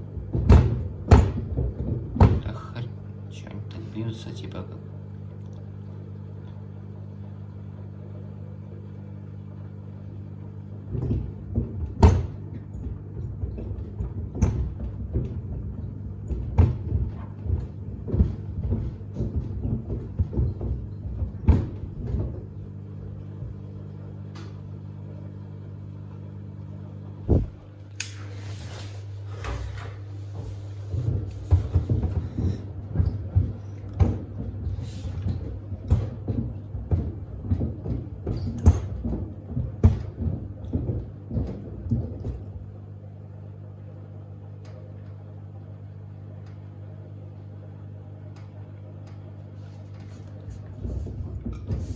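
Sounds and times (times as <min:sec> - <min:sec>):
sneakers thudding in drum: 0:00.0 - 0:02.7, 0:10.8 - 0:23.8, 0:27.2 - 0:27.8, 0:30.3 - 0:42.7
washer drum motor hum: 0:00.0 - 0:51.9.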